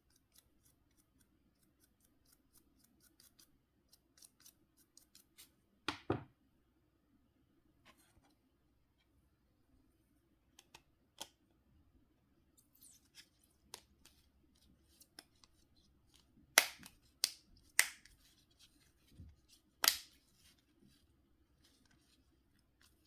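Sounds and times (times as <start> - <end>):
faint clicks of phone parts: 10.5 - 11.4
sharp snaps: 16.6 - 18.1, 19.8 - 20.1.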